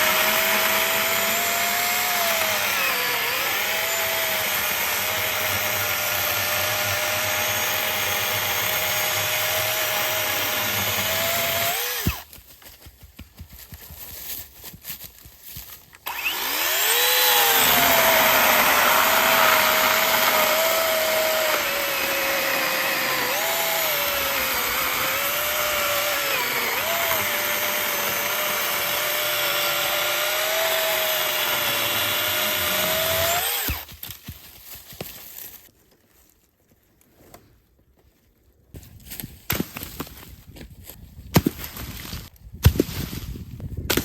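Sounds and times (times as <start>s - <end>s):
cordless saw cutting wood: 0.0s - 12.2s, 16.0s - 33.9s.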